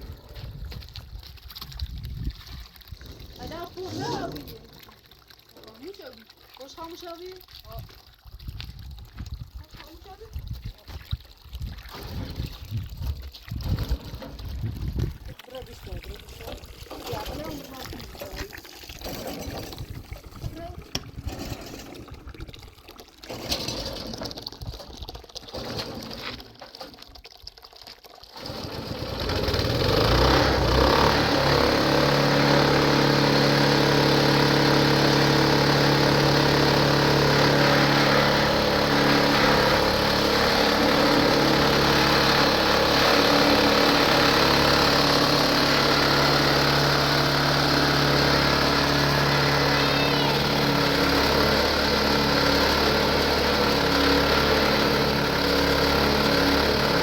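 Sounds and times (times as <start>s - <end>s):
tractor engine starting and running: 3.0s - 5.2s, 13.6s - 27.1s, 28.3s - 57.0s.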